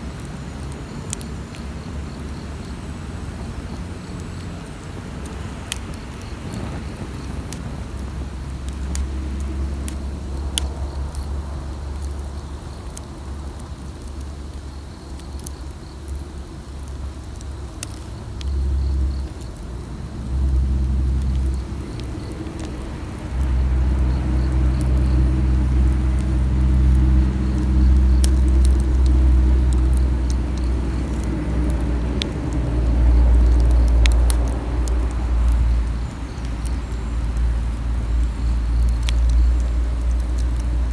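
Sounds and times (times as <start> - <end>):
campfire crackling and popping: 0.0 - 40.9
low rumble with hum: 0.0 - 40.9.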